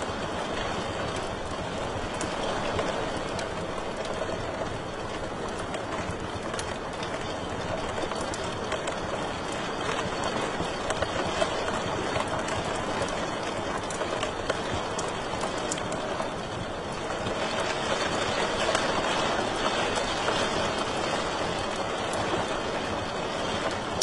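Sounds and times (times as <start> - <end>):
fire crackles and pops: 0.0 - 24.0.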